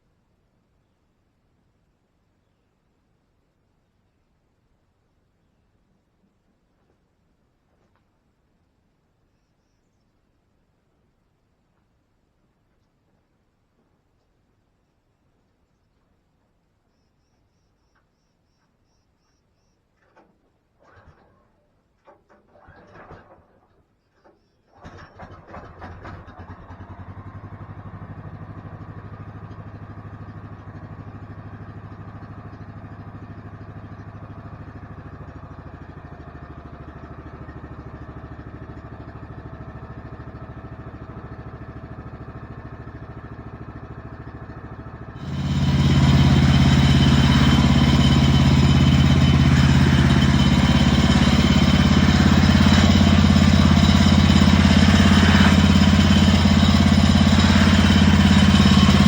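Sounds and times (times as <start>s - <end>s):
gas engine idling and revving: 24.8s - 59.0s.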